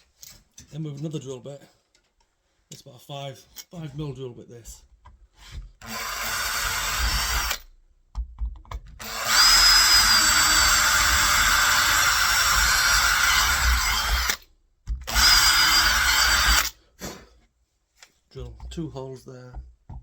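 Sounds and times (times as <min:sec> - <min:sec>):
power drill drilling into door: 0:05.8 - 0:07.6, 0:09.0 - 0:14.4, 0:15.0 - 0:16.8.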